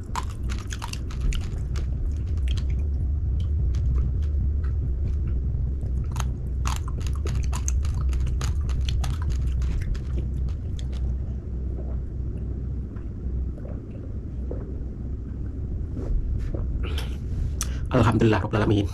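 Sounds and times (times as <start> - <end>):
chewing raw rice crunching: 0.0 - 4.4, 5.8 - 11.2
steady low rumble: 0.0 - 18.9.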